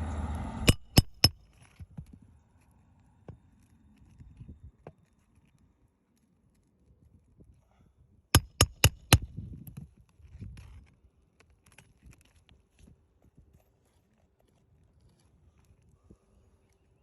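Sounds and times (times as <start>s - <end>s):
hammer blows on shingles: 0.6s - 1.4s, 8.4s - 9.3s.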